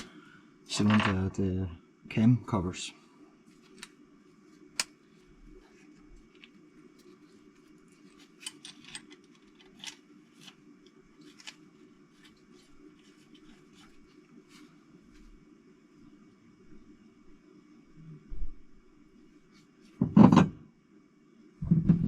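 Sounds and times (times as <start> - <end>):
faint low hum: 0.0 - 22.0
metal parts clicking: 8.0 - 10.5.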